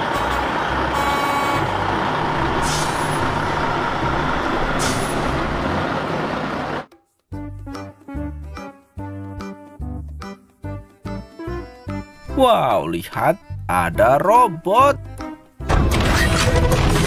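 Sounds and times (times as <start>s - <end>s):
diesel truck engine driving past: 0.0s - 6.9s
air brake hisses: 2.6s - 3.2s.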